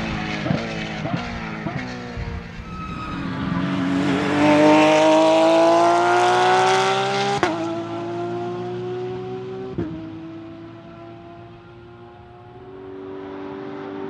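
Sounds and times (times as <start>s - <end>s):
racing car engine revving: 0.0s - 14.0s.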